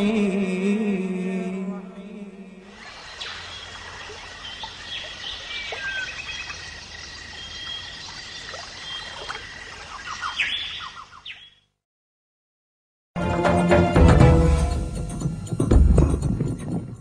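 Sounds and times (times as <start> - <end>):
birds chirping: 2.8 - 11.8.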